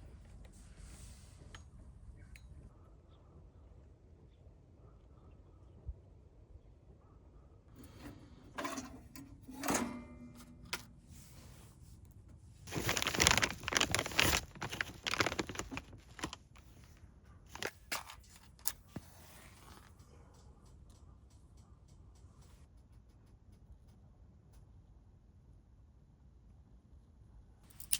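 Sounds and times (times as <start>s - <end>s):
ringing metal clank: 8.5s - 10.7s
paper and kindling crunching: 12.6s - 19.9s.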